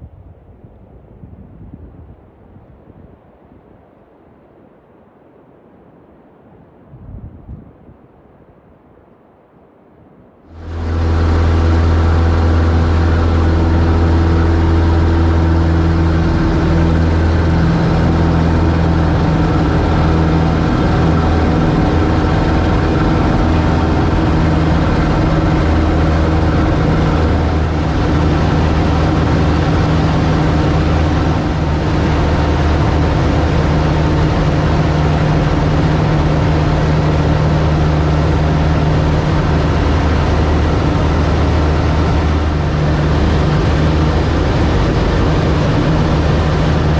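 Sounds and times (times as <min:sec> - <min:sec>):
light aircraft engine droning: 0:10.5 - 0:46.9.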